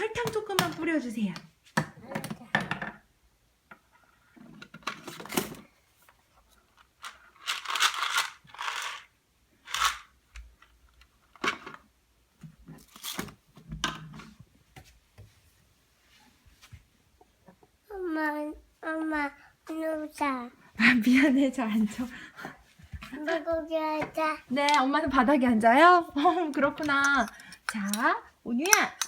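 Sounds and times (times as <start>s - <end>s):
toy kitchen items clicking and knocking: 0.0s - 3.0s, 7.0s - 9.1s, 9.7s - 10.1s, 24.0s - 25.3s, 26.1s - 29.0s.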